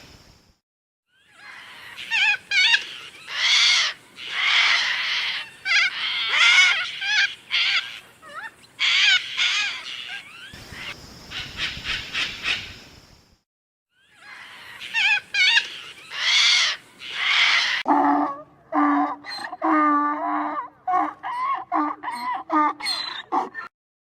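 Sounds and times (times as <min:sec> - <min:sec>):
animal calls with wavering pitch: 0:14.0 - 0:23.7.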